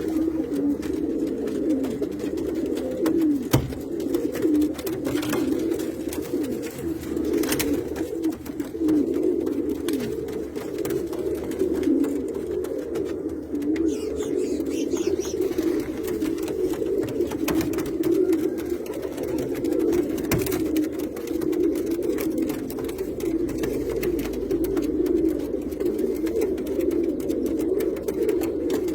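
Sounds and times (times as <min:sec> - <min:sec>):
pigeons cooing: 0:00.0 - 0:28.9
sharp knocks: 0:03.5 - 0:03.8.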